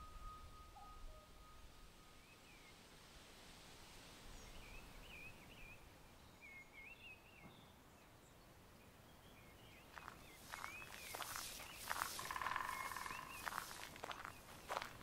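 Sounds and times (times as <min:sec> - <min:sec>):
bird warbling: 0:10.0 - 0:14.9.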